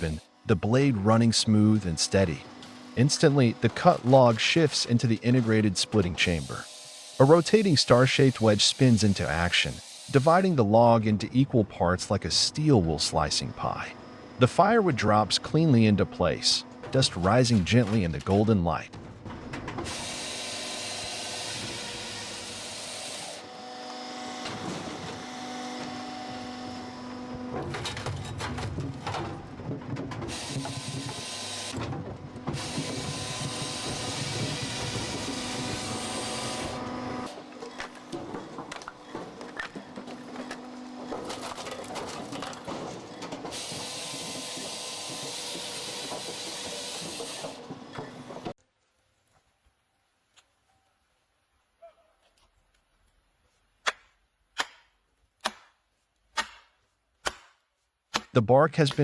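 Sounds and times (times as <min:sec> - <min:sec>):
firewood processor running: 0:00.0 - 0:11.0, 0:12.9 - 0:48.5
loud steady hiss: 0:06.2 - 0:10.6
machine clattering and knocking: 0:16.8 - 0:20.0, 0:27.5 - 0:48.6.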